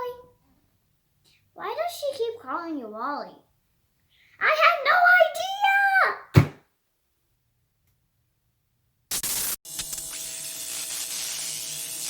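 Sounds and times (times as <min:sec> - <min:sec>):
burst of static noise: 0:09.1 - 0:12.0
static hiss: 0:09.1 - 0:12.0.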